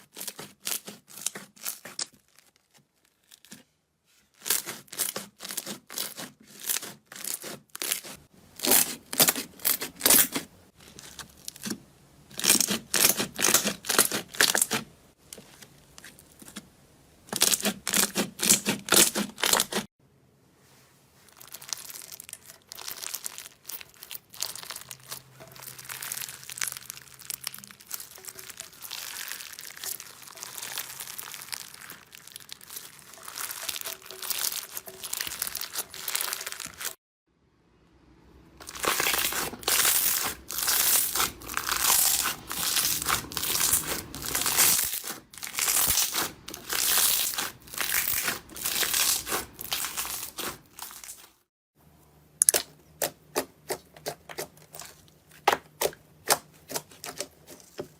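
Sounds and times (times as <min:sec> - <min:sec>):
slime crackling and popping: 0:21.3 - 0:37.0, 0:38.6 - 0:51.4.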